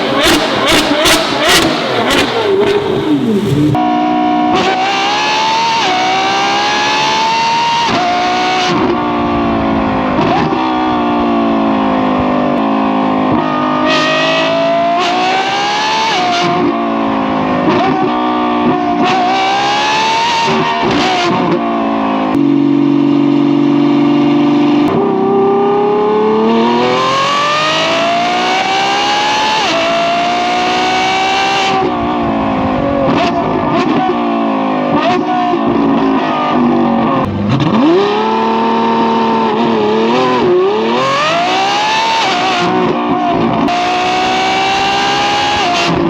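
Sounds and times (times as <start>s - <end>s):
car engine accelerating through gears: 0.0s - 46.0s.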